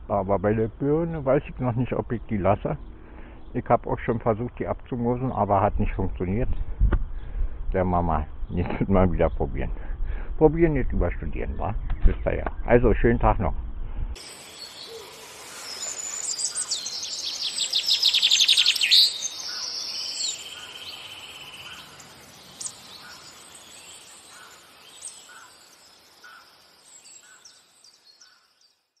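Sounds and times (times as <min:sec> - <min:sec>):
bird rapid trill: 0:14.2 - 0:28.6
high bird chirps: 0:14.2 - 0:28.9.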